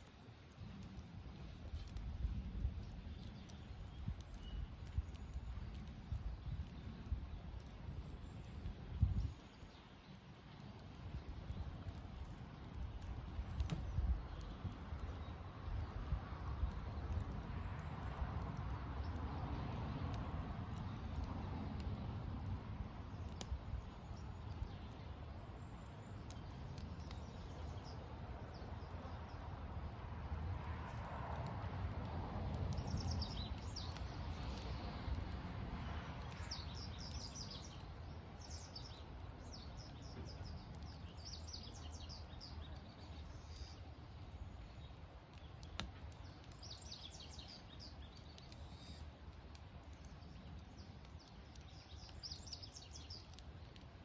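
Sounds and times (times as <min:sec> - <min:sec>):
campfire crackling: 0:00.0 - 0:54.0.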